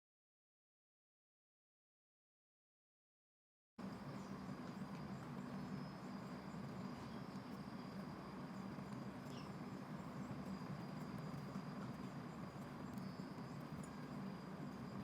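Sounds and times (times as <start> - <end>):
high insect drone: 3.8 - 15.0.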